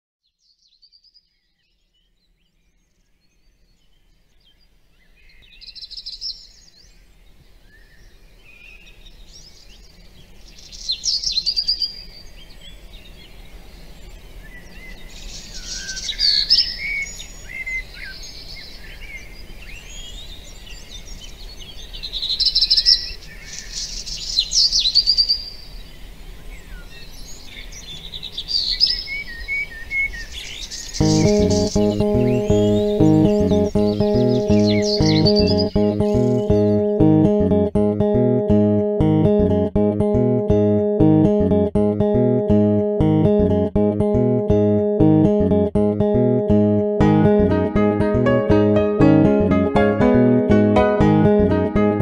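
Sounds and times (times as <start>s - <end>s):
birds chirping and singing: 26.6s - 36.9s.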